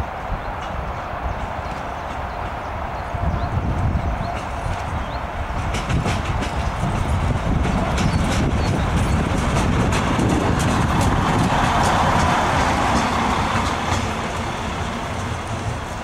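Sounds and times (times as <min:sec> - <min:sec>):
railcar low rumble: 0:00.0 - 0:16.0.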